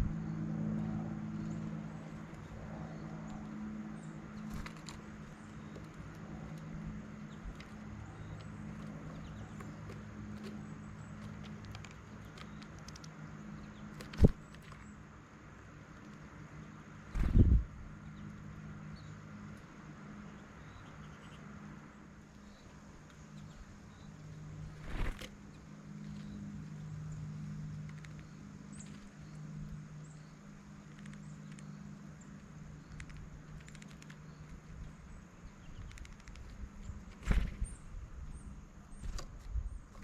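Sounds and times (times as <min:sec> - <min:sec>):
small birds chirping: 0:00.0 - 0:40.0
steady low hum: 0:00.0 - 0:40.0
light clicks: 0:27.7 - 0:30.2, 0:30.8 - 0:35.0.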